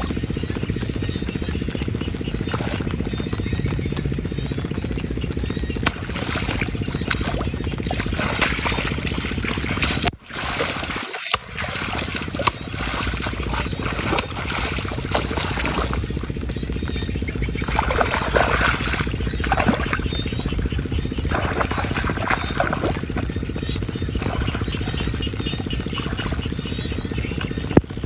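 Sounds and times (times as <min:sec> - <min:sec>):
steady low buzz: 0:00.0 - 0:28.0
water splashing and sloshing: 0:05.8 - 0:27.9.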